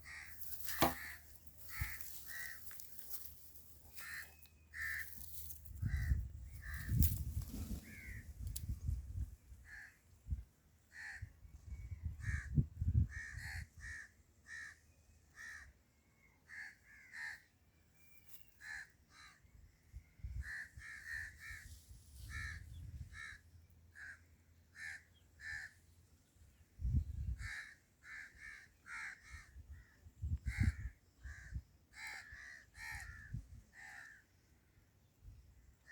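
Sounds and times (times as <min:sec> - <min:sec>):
birds calling: 0:00.0 - 0:08.6.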